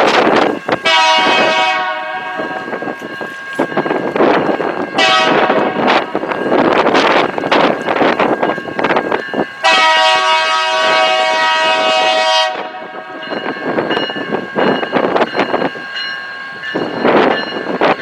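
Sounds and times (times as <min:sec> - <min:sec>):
passing train rushing: 0:00.0 - 0:18.0
locomotive horn blast: 0:00.8 - 0:02.6, 0:05.0 - 0:05.9, 0:09.6 - 0:13.2.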